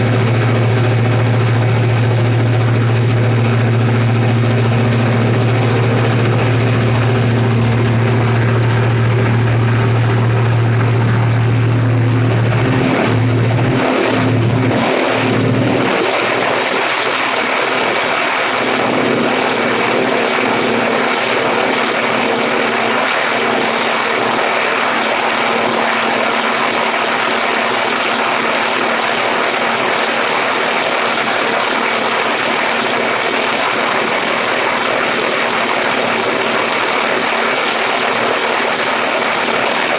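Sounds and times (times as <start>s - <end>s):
rushing airflow: 0.0s - 17.5s
aircraft engine and propeller drone: 0.0s - 39.9s.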